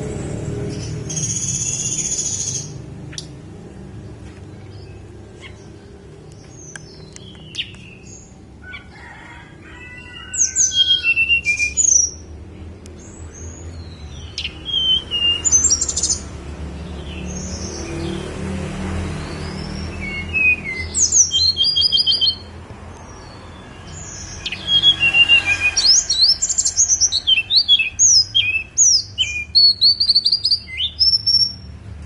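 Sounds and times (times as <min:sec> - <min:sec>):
songbird singing: 0:00.0 - 0:32.0.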